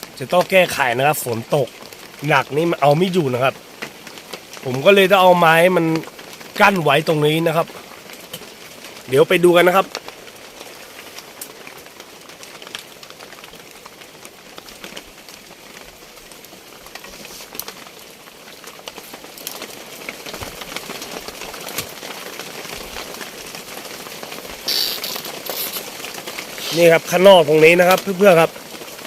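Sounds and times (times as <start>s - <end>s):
steady rain falling: 0.0s - 29.0s
short rustle: 24.7s - 27.1s.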